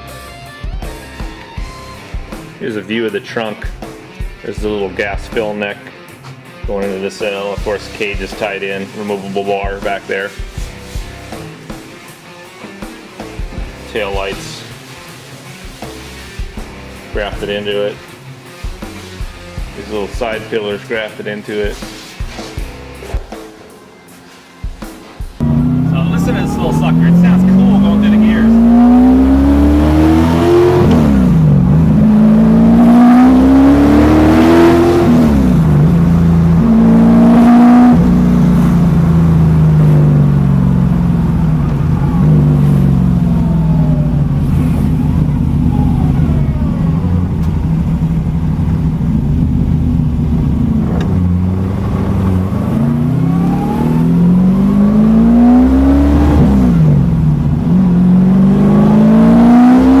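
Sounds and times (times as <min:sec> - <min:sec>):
engine accelerating through gears: 0:25.4 - 1:00.0.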